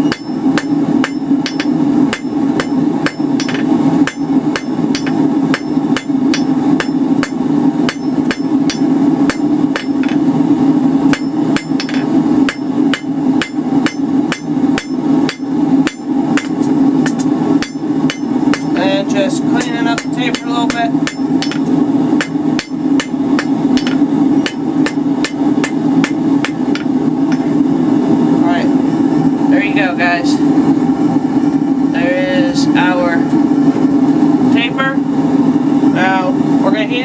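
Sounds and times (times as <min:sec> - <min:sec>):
hammer striking hot metal on anvil: 0:00.0 - 0:10.3, 0:11.0 - 0:18.9, 0:19.6 - 0:27.5
steady low hum: 0:00.0 - 0:37.0.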